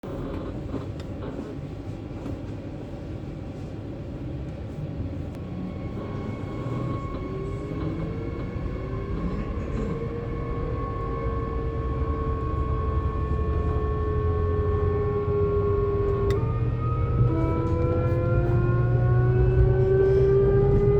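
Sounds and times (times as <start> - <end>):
train running rumble: 0.1 - 20.9
electric train traction whine: 5.4 - 20.9.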